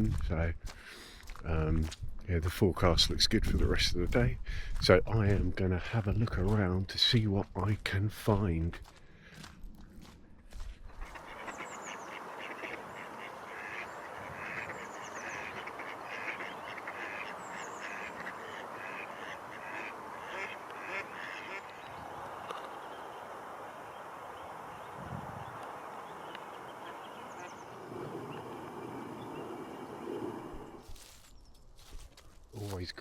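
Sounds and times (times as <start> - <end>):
small birds chirping: 10.0 - 33.0
ducks quacking: 11.0 - 30.8.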